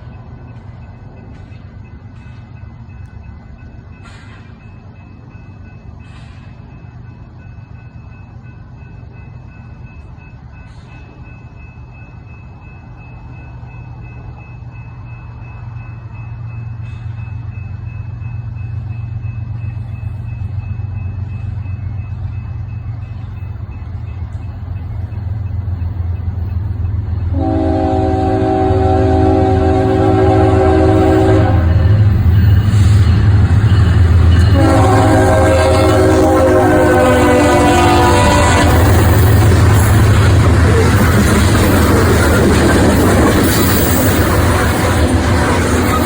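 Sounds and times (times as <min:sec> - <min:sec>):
diesel locomotive engine rumble: 0:00.0 - 0:46.0
locomotive air horn chord: 0:27.3 - 0:32.0, 0:34.5 - 0:39.1.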